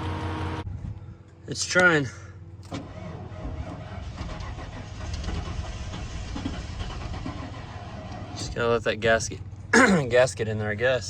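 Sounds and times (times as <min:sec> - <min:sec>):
engine cranking without starting: 0:02.6 - 0:08.6.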